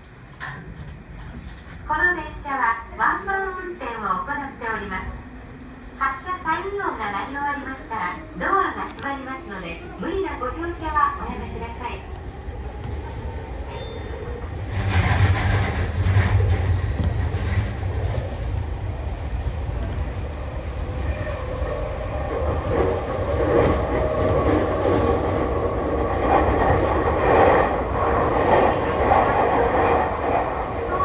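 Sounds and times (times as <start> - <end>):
clickety-clack over rail joints: 0.0 - 2.0, 11.3 - 30.9
train wheels rumbling on rails: 0.0 - 2.4, 3.8 - 31.0.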